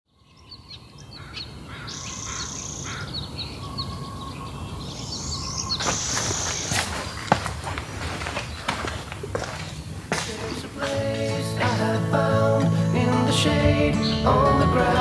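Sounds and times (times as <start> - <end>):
birds chirping: 0.1 - 15.0
broad rustling noise: 5.8 - 11.8.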